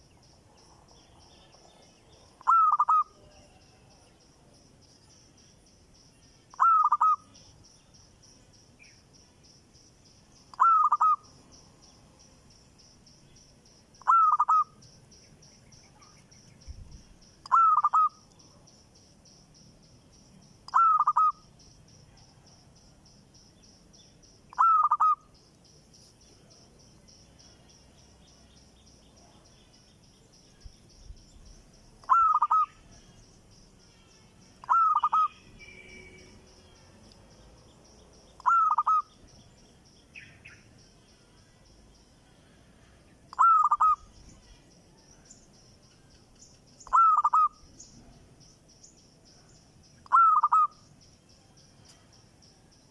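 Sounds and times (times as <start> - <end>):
bird calling: 2.4 - 3.4, 6.5 - 7.4, 10.5 - 11.3, 14.0 - 14.8, 17.4 - 18.3, 20.7 - 21.5, 24.5 - 25.4, 32.0 - 32.9, 34.6 - 36.2, 38.4 - 39.2, 43.3 - 44.2, 46.8 - 47.9, 50.0 - 50.9.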